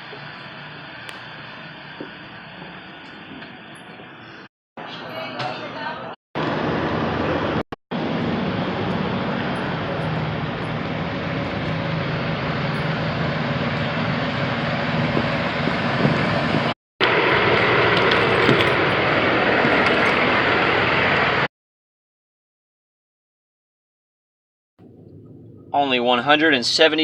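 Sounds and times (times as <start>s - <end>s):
low engine drone: 0.0s - 5.1s, 6.4s - 21.5s, 24.8s - 27.0s
road and wind noise: 6.4s - 21.5s.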